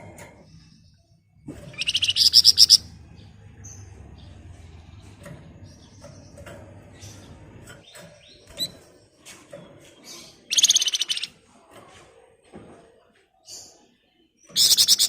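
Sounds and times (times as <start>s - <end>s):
songbird chirping: 0.0s - 12.0s, 13.0s - 15.0s
bird rattling trill: 1.7s - 2.9s, 10.5s - 11.3s.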